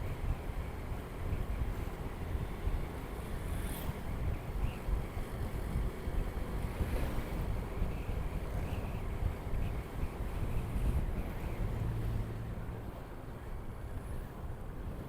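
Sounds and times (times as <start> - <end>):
motorcycle road and engine noise: 0.0 - 15.0
wind buffeting microphone: 0.0 - 15.0.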